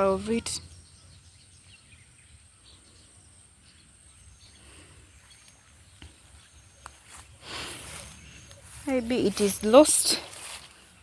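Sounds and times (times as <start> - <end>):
faint rustles: 4.6 - 11.0.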